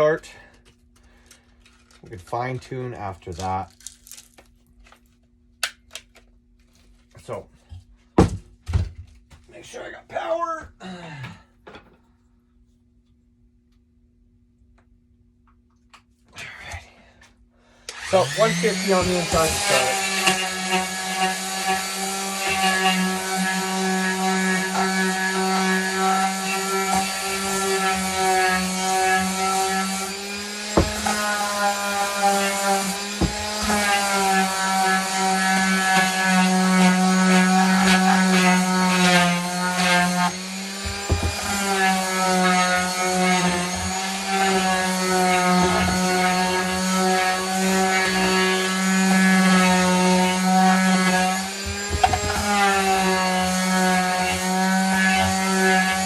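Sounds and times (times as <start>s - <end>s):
electric sander humming: 17.9s - 56.0s.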